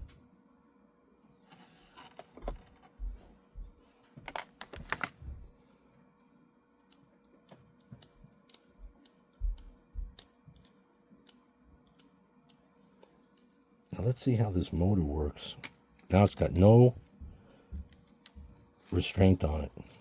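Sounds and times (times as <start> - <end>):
small mechanism clicks and taps: 6.8 - 12.6.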